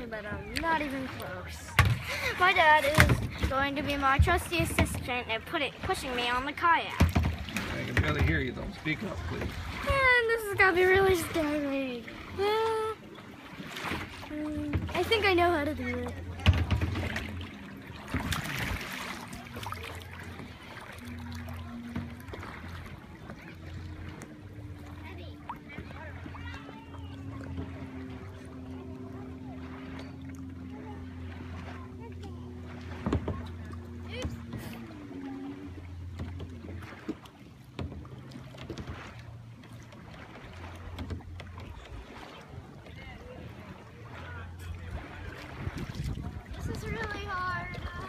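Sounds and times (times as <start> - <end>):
water splashing around kayak: 0.0 - 48.0
wind rumbling on microphone: 44.6 - 48.0.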